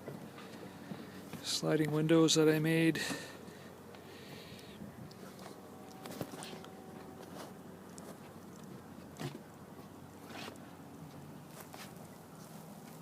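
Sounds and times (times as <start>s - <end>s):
low steady hum: 0.0s - 13.0s
light rustles: 5.1s - 13.0s.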